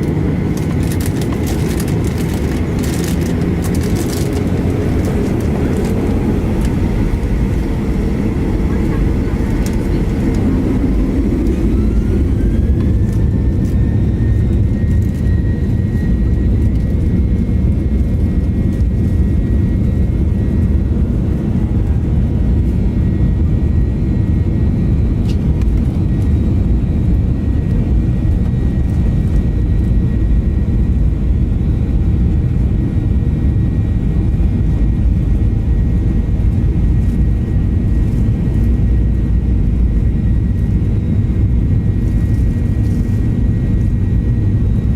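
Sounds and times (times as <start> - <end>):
jet engine roar: 0.0 - 44.9
jet engines whining: 0.0 - 44.9.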